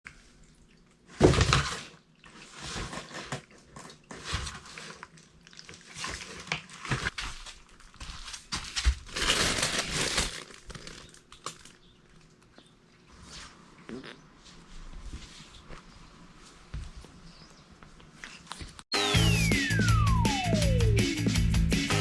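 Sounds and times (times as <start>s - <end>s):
rustling and scuffling: 5.8s - 11.1s, 13.1s - 18.8s.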